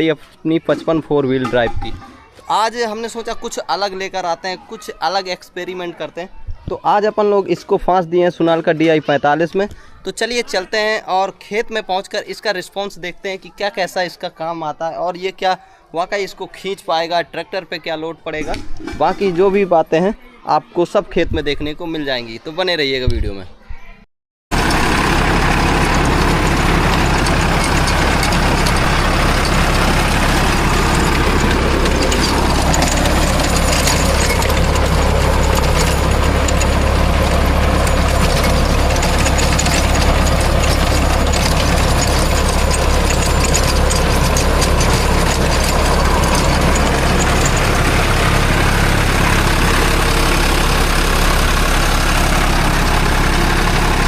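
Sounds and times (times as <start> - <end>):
tractor diesel engine running: 24.5 - 54.0.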